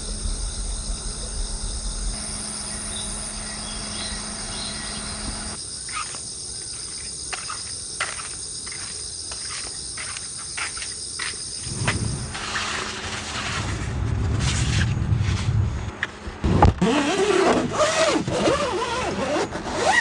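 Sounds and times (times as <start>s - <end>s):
insects chirping: 0.0s - 13.2s.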